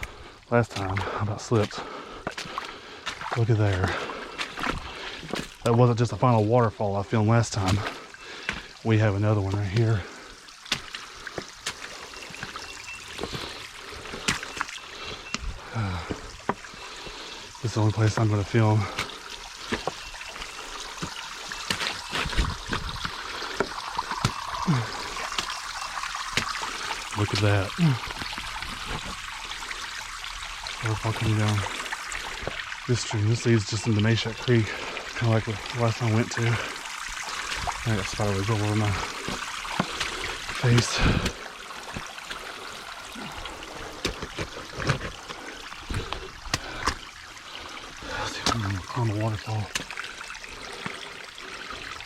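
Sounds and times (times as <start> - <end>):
small waterfall splashing: 0.0 - 52.0.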